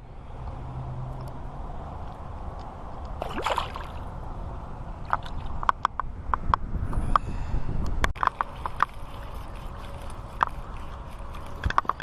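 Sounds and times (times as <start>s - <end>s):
water splash: 3.2s - 4.1s
water sloshing: 3.2s - 4.2s, 5.0s - 5.7s, 8.2s - 12.0s.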